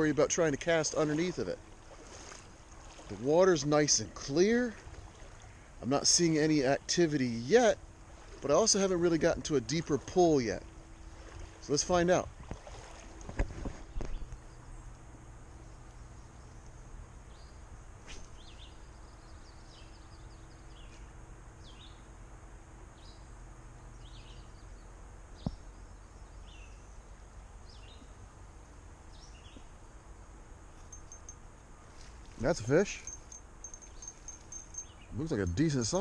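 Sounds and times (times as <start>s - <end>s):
faint wind rumble: 0.0s - 36.0s
bird chirping: 13.9s - 22.1s, 23.0s - 28.2s, 29.1s - 29.8s, 30.7s - 32.1s, 32.7s - 36.0s.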